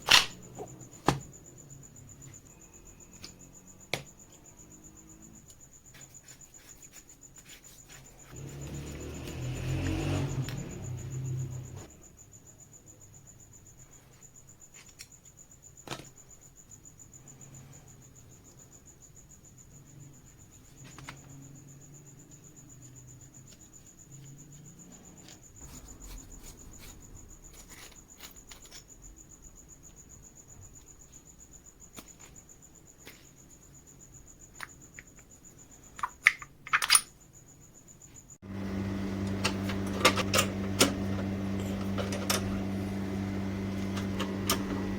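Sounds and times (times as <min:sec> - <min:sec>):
electric motor humming: 0:08.4 - 0:11.9, 0:38.4 - 0:44.9.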